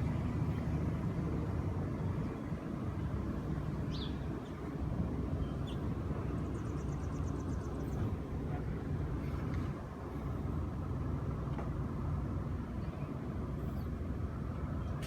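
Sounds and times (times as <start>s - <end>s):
steady low rumble: 0.0s - 15.0s
small birds calling: 3.8s - 8.4s.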